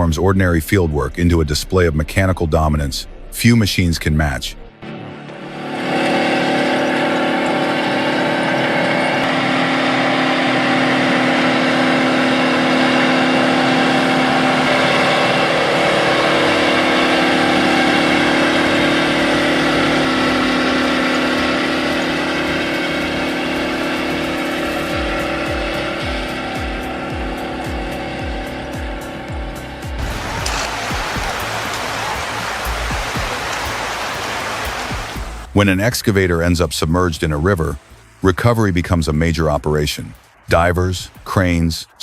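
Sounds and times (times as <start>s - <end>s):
tractor diesel engine running: 5.4s - 35.7s.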